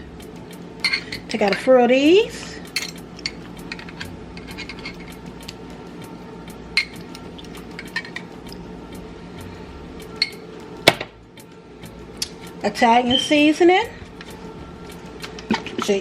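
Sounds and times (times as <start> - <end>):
steady low hum: 0.0 - 16.0
utensil clinking on jar and dishes: 0.8 - 1.7, 2.7 - 5.1.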